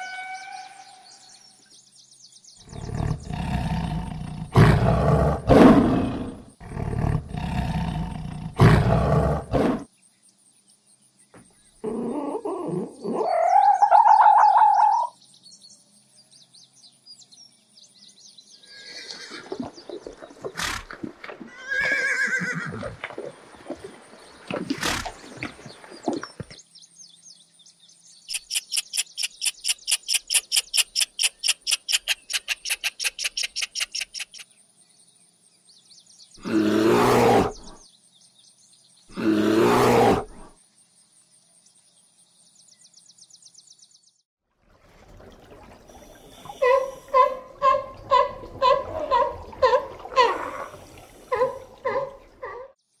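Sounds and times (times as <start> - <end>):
lioness roaring: 2.6 - 9.9, 36.4 - 37.8
horse neighing: 21.5 - 23.0
fast rattling animal call: 28.3 - 34.4.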